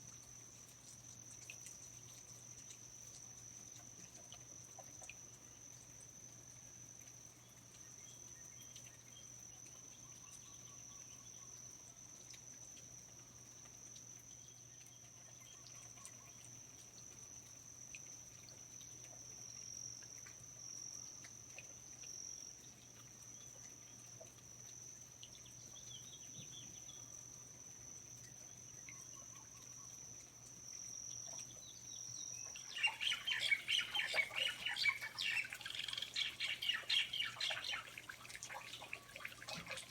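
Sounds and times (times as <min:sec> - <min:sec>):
bird chirps: 0:31.5 - 0:39.9
bird squawking rapidly: 0:32.7 - 0:39.1.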